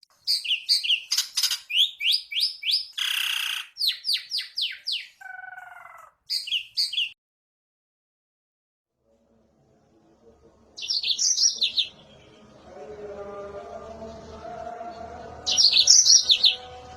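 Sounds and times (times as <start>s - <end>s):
canary singing: 0.2s - 7.2s, 10.8s - 16.9s.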